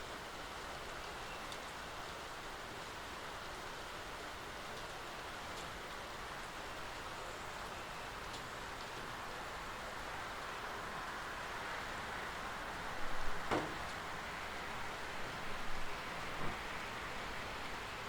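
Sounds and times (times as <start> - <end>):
steady rain falling: 0.0 - 18.0
faint drip ticks: 1.4 - 2.2, 4.8 - 5.7, 8.3 - 9.1.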